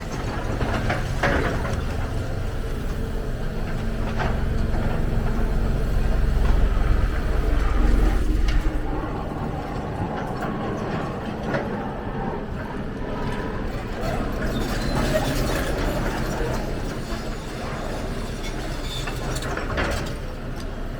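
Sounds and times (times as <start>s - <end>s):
excavator diesel engine under load: 0.0s - 20.9s.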